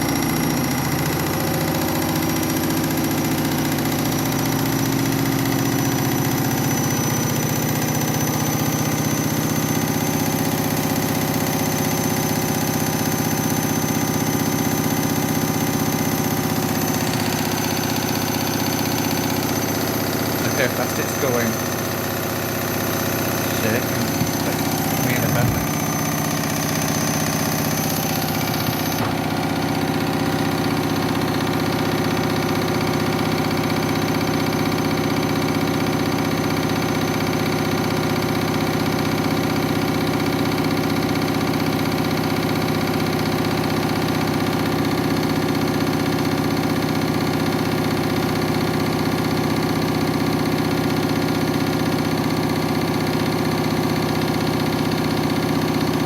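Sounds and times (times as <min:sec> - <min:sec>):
washing machine spinning: 0:00.0 - 0:56.0.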